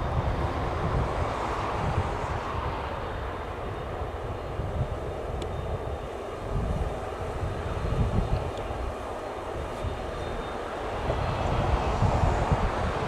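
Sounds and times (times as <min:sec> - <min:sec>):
aircraft engine running: 0:00.0 - 0:13.0.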